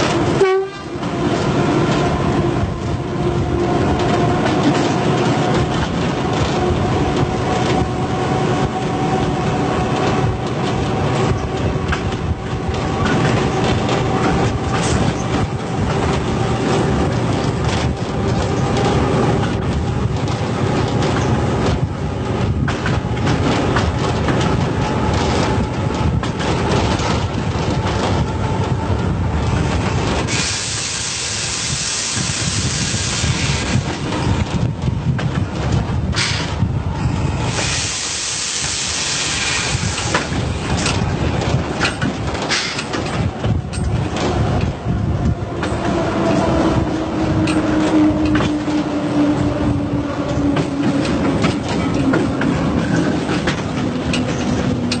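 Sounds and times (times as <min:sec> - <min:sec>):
train wheels clattering on rails: 0:00.0 - 0:55.0
loud hiss: 0:30.3 - 0:33.7, 0:37.5 - 0:40.3.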